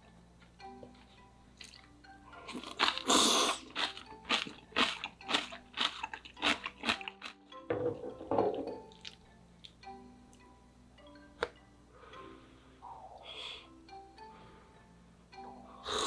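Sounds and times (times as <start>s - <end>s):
faint background music: 0.0s - 16.0s
chewing: 1.0s - 7.4s, 8.9s - 9.8s
slurping noodles: 2.4s - 7.2s.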